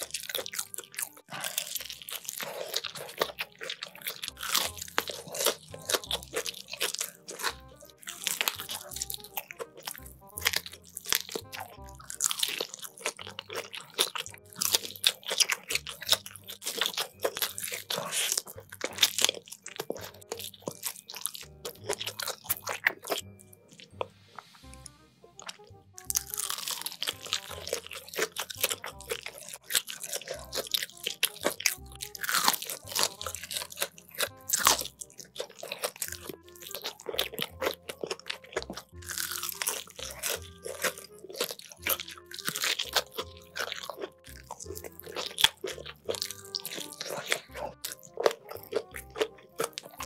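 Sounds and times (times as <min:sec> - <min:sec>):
background music: 0:00.0 - 0:50.0
crunching fried chicken: 0:00.0 - 0:50.0.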